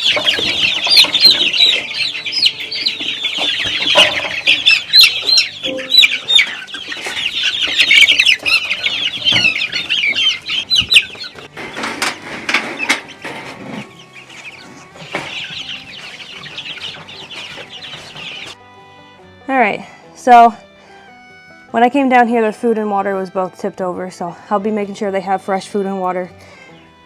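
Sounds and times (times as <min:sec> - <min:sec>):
chicks peeping: 0:00.0 - 0:18.6.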